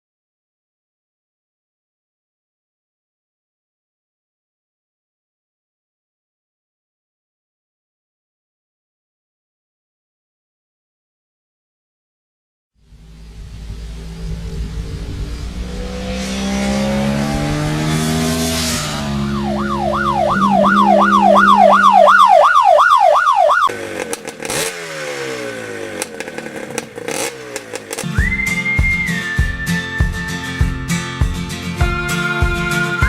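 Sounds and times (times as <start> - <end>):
siren-like rising tone: 12.8 - 23.7
motorcycle engine revving: 12.8 - 32.0
music with whistled note: 28.0 - 31.2, 31.8 - 33.0.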